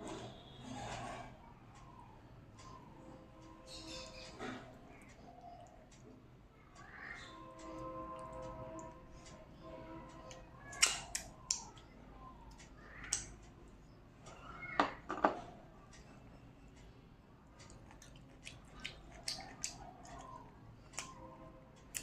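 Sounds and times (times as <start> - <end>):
person chewing food: 17.6 - 21.2, 21.8 - 22.0.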